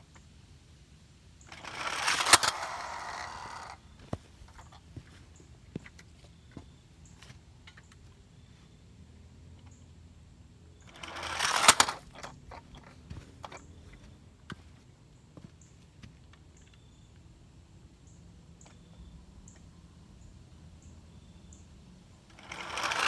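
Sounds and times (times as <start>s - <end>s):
toy truck motor whirring: 1.4s - 4.8s, 10.8s - 14.1s, 22.3s - 23.0s
toy truck crashing into car: 1.5s - 3.8s, 10.9s - 13.6s, 22.3s - 23.0s.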